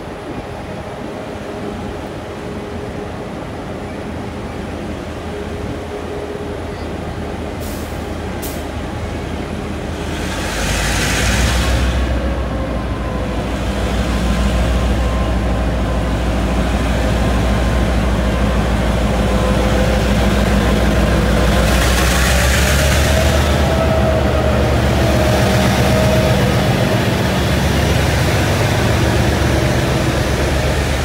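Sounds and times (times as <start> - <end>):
train low hum: 0.0 - 31.0
train hissing: 7.5 - 31.0.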